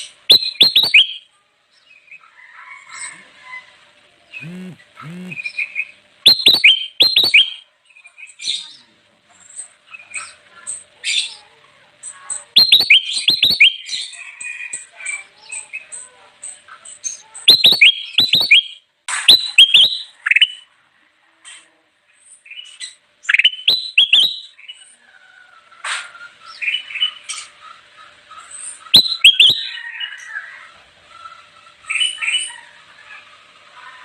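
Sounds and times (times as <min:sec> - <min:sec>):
soft bird warbling: 0:04.4 - 0:05.4, 0:06.3 - 0:07.6.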